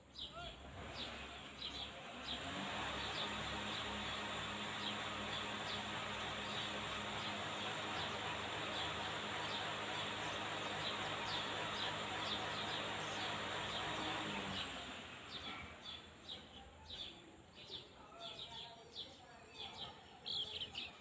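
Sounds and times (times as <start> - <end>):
small birds chirping: 0.0 - 21.0
steady rushing noise: 2.4 - 15.4.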